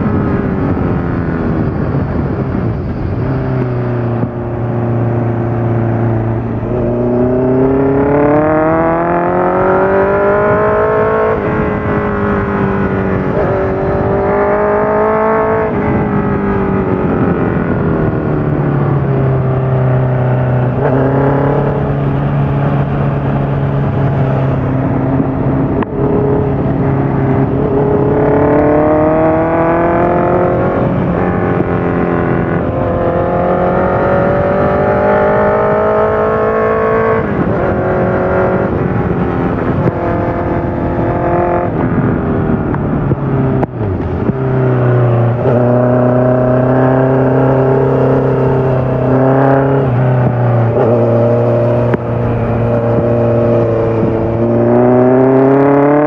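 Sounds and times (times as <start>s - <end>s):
motorcycle engine revving through gears: 0.0s - 56.0s.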